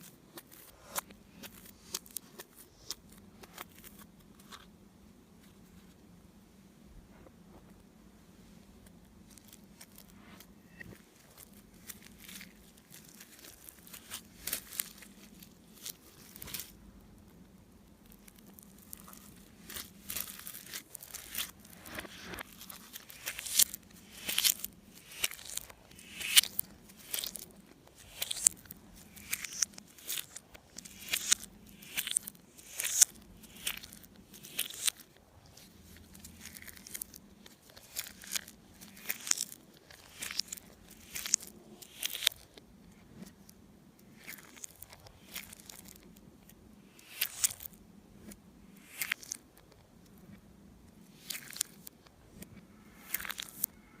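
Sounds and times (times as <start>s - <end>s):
slime sticky crackles and pops: 17.9s - 35.1s, 36.0s - 42.6s, 44.2s - 47.8s.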